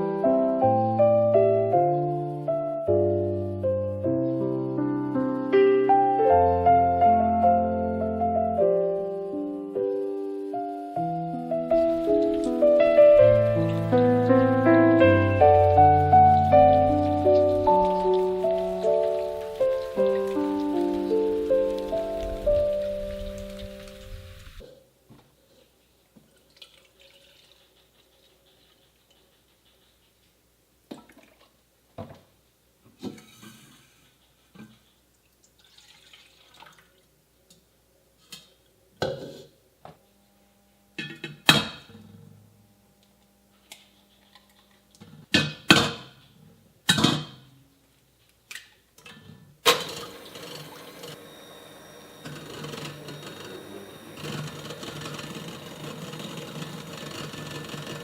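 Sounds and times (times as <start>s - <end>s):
dishes and pots clinking: 41.0s - 42.1s.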